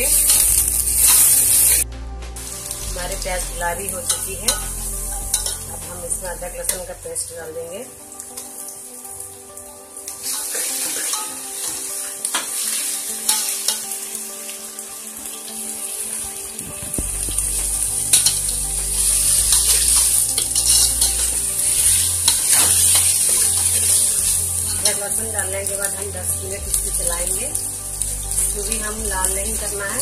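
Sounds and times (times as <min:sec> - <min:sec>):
onions sizzling in hot oil: 0:00.0 - 0:01.8, 0:02.4 - 0:30.0.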